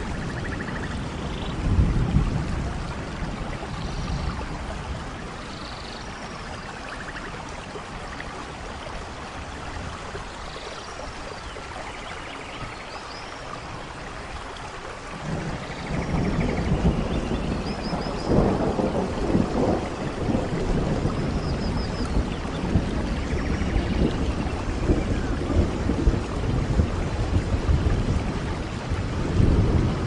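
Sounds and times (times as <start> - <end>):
low thunder rolls: 0.0 - 5.2, 15.1 - 30.0
rain falling: 0.0 - 30.0.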